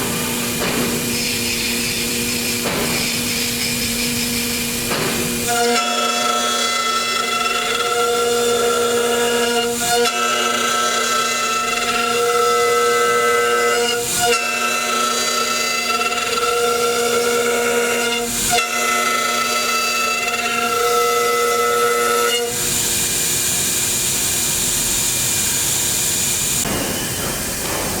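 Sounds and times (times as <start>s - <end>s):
router spindle whining: 0.0s - 27.6s.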